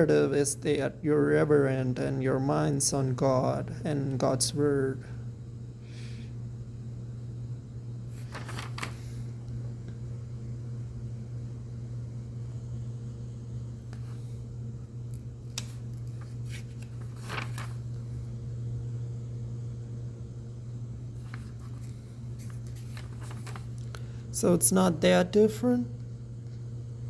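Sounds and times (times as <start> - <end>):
low room hum: 0.0 - 27.0
book pages rustling: 8.1 - 9.2, 15.5 - 18.0, 21.2 - 24.0.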